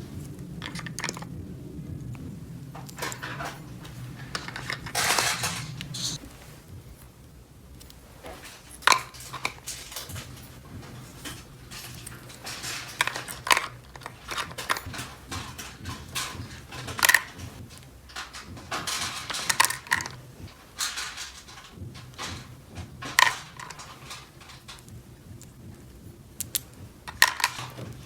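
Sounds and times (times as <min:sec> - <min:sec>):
rustling: 0:00.0 - 0:28.0
plastic toy pieces clicking: 0:00.6 - 0:01.3, 0:12.5 - 0:20.2, 0:23.0 - 0:25.0, 0:26.4 - 0:27.9
sharp plastic clacks: 0:07.8 - 0:28.0.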